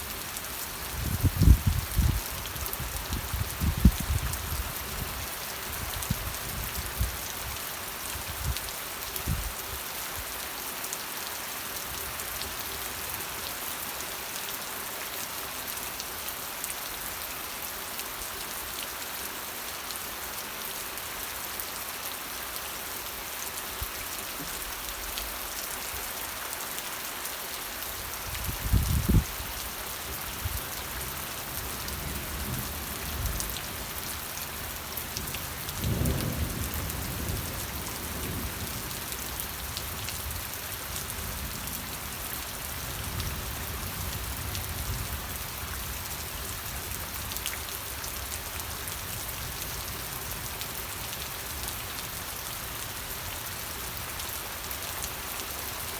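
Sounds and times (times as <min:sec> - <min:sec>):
steady rain: 0:00.0 - 0:55.9
thunder rumbling: 0:35.8 - 0:38.9.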